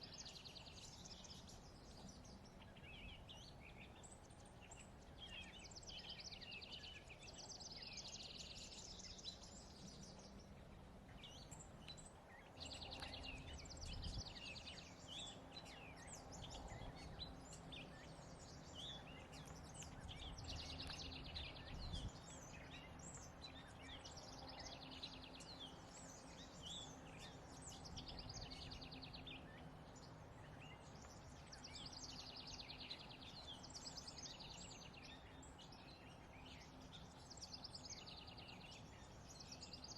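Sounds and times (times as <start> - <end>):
songbirds singing trills: 0.0 - 39.9.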